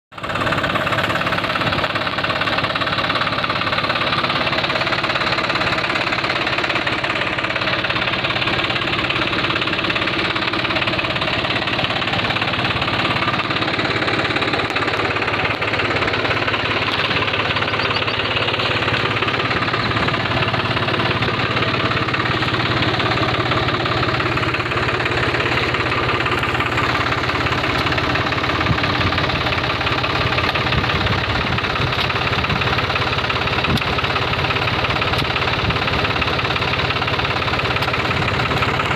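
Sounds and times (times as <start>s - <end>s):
engine running with knocking pulse: 0.1s - 38.9s.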